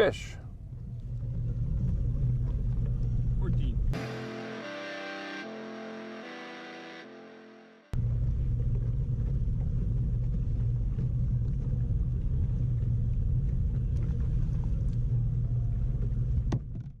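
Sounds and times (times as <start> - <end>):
boat motor rumbling: 8.0 - 16.8.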